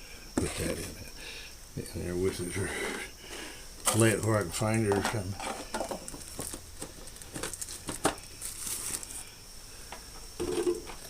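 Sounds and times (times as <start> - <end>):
rustling: 5.0 - 9.3.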